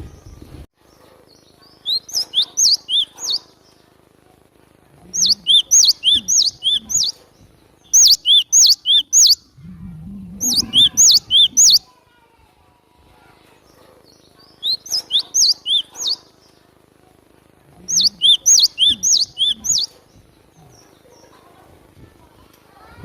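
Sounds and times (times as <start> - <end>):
bird singing whistled phrases: 1.8 - 3.4, 5.2 - 7.2, 7.9 - 9.5, 10.4 - 11.9, 14.6 - 16.2, 17.9 - 20.0.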